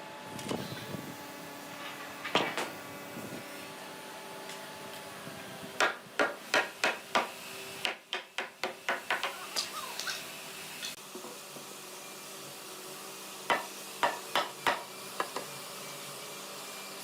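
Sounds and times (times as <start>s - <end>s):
hammer striking wood: 5.8s - 9.4s, 13.5s - 15.5s.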